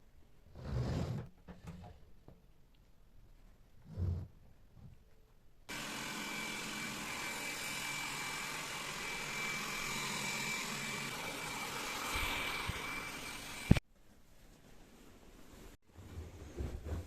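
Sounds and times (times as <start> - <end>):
vacuum cleaner running: 5.7 - 13.8.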